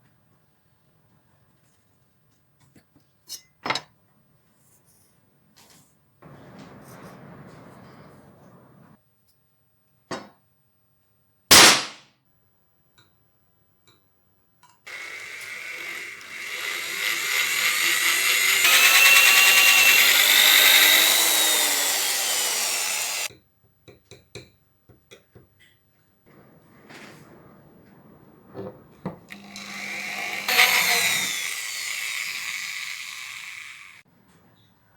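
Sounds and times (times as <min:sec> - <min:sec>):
electric power tool running: 0:14.9 - 0:23.3, 0:29.3 - 0:34.0.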